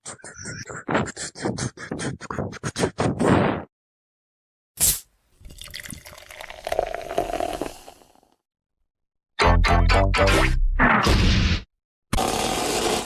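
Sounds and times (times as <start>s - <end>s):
watery pouring sound: 5.4s - 8.2s.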